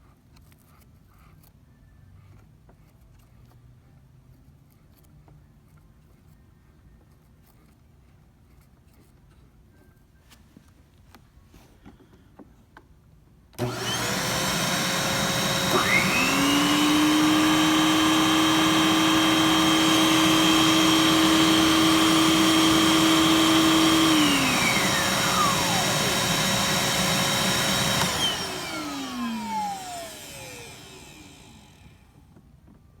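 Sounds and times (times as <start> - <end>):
lower motor whine: 13.6 - 32.2
vacuum cleaner whine: 13.6 - 32.3.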